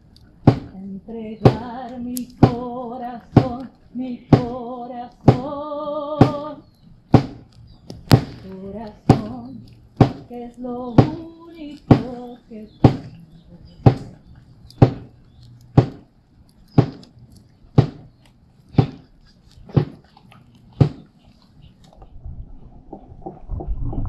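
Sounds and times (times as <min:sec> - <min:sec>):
person singing: 0:00.8 - 0:06.6, 0:08.4 - 0:09.7, 0:10.3 - 0:14.1.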